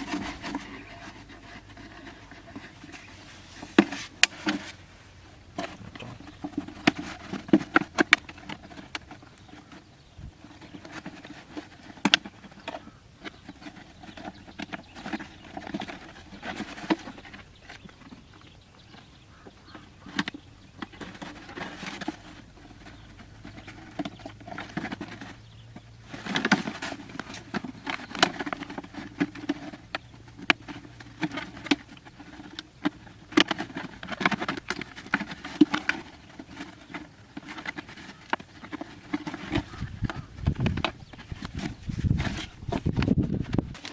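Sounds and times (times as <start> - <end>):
rustling: 0.0 - 43.9.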